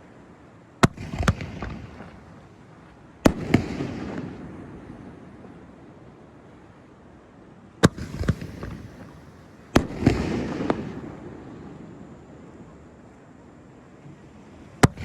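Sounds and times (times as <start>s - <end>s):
small fireworks pops: 0.8s - 4.5s, 7.8s - 11.2s, 14.8s - 15.0s
fireworks bangs: 0.8s - 5.6s, 7.8s - 12.0s.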